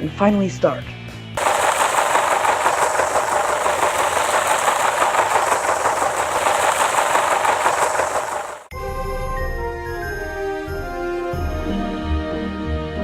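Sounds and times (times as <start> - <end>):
rattling vehicle engine: 1.4 - 8.7.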